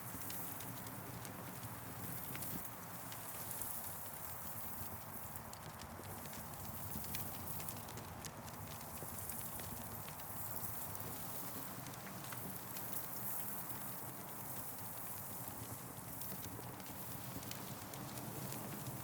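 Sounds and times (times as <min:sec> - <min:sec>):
burning wood crackling and popping: 0:00.1 - 0:19.0.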